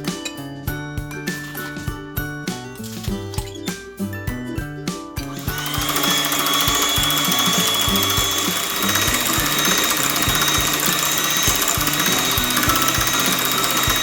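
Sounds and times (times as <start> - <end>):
electric mixer motor whine: 5.4 - 14.0.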